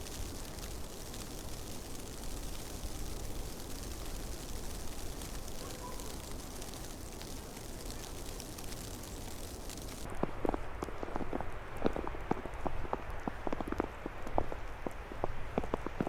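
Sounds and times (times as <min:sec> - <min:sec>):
blizzard wind blowing: 0:00.0 - 0:10.1.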